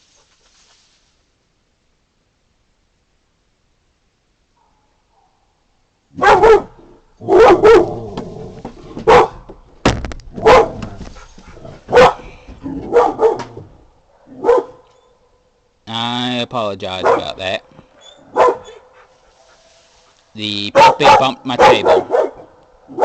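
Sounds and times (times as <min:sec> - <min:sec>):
puppy barking: 0:06.1 - 0:08.0, 0:09.0 - 0:09.5, 0:10.4 - 0:10.9, 0:11.5 - 0:12.3, 0:12.9 - 0:13.6, 0:14.2 - 0:14.8, 0:17.0 - 0:17.4, 0:18.2 - 0:19.0, 0:20.7 - 0:23.0.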